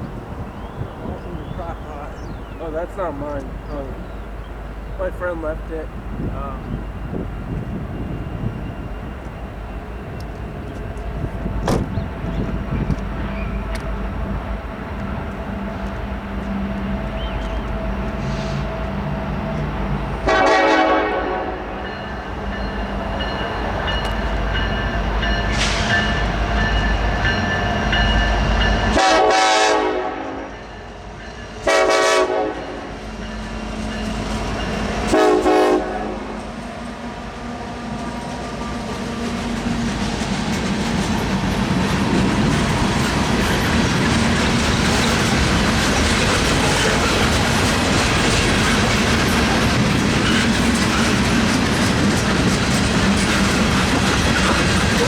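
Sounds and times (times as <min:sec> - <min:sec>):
freight train rolling past: 0:00.0 - 0:55.0
train wheels clickety-clack: 0:07.1 - 0:14.2, 0:21.8 - 0:29.0, 0:37.9 - 0:55.0
train horn chord blasts: 0:16.5 - 0:22.4, 0:28.8 - 0:30.8, 0:31.6 - 0:33.0, 0:35.0 - 0:36.6.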